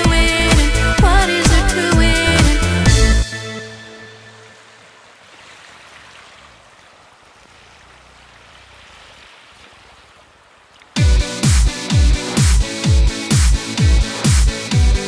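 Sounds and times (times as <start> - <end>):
electronic dance music: 0.0 - 4.0, 11.0 - 15.0
moving sea water: 3.7 - 15.0.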